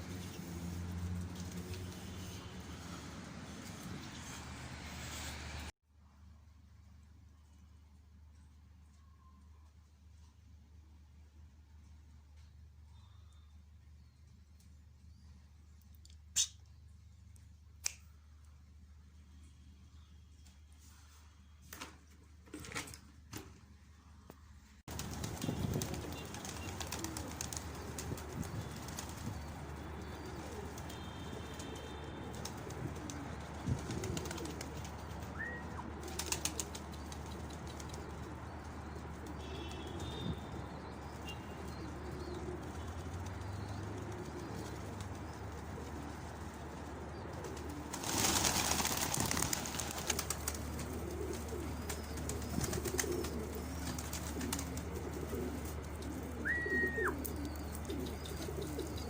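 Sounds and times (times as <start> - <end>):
pigeons cooing: 25.8 - 29.4, 30.0 - 38.2, 41.7 - 59.0.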